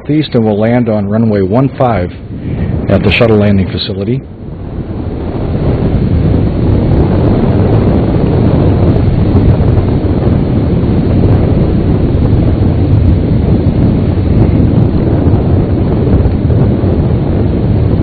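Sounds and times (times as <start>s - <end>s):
jet engines rumbling: 0.0s - 18.0s
wind buffeting microphone: 0.0s - 18.0s.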